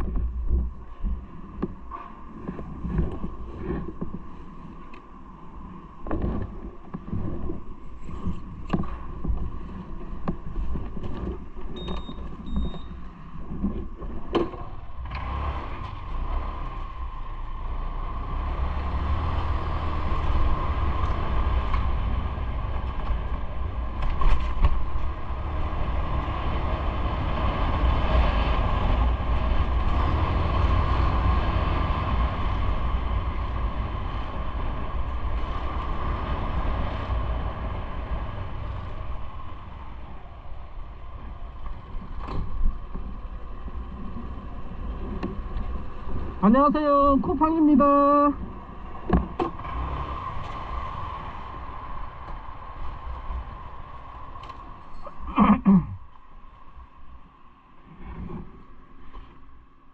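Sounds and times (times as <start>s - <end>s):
wind on microphone: 0.0s - 47.6s
vehicle riding rumble: 0.0s - 59.9s.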